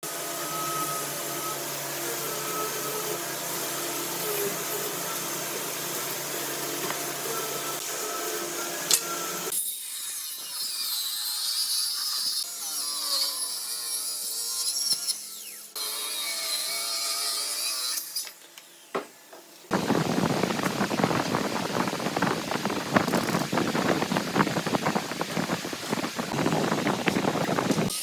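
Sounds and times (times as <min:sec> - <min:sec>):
woodworking power tool whine: 0:00.0 - 0:19.1, 0:19.7 - 0:28.0
dense rushing noise: 0:19.7 - 0:27.9.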